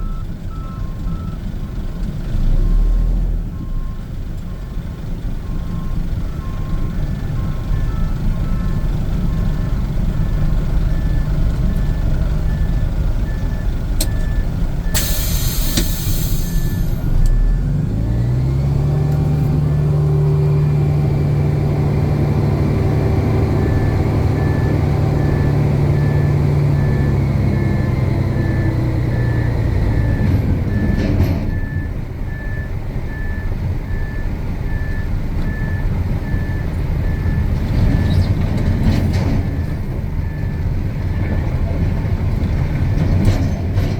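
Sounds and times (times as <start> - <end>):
truck backup alarm beeping: 0.0 - 38.4, 39.2 - 42.1
diesel engine revving: 0.0 - 43.9
diesel truck engines running: 0.0 - 43.9
sharp hiss of air: 15.0 - 17.0.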